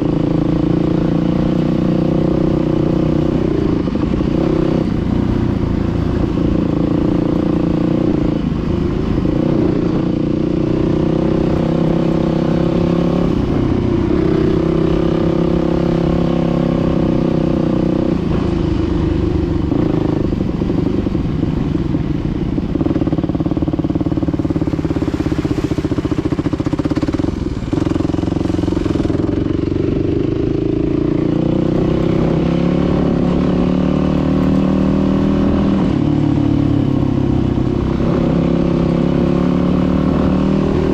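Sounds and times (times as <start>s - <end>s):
dirt bike engine running: 17.4s - 35.7s.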